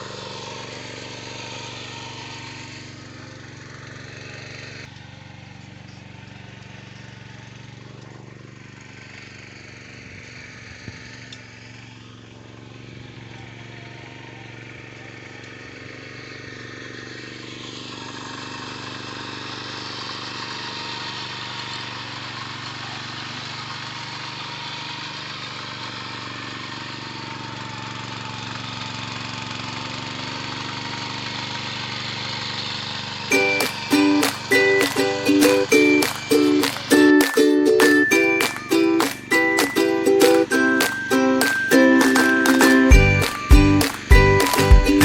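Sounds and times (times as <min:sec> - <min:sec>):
small tractor engine running: 0:00.0 - 0:45.0
plucked string music: 0:33.3 - 0:45.0.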